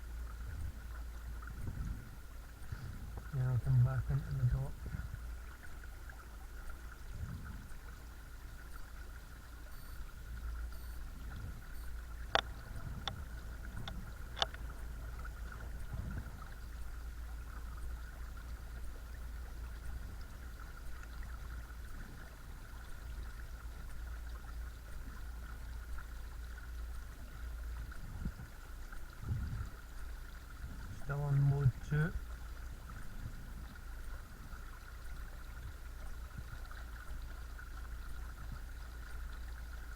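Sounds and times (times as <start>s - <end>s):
low rumble: 10.4s - 21.3s.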